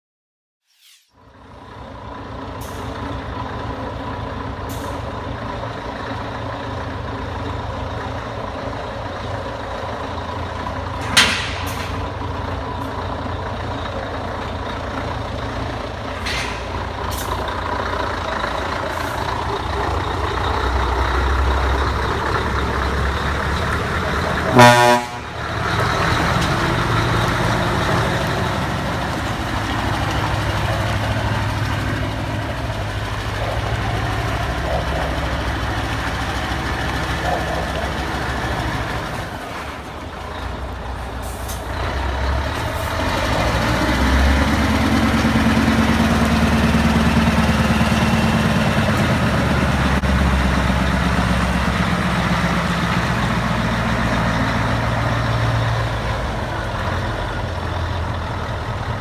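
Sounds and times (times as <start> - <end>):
short air hisses: 0.7 - 1.1
truck diesel engine running: 1.3 - 59.0.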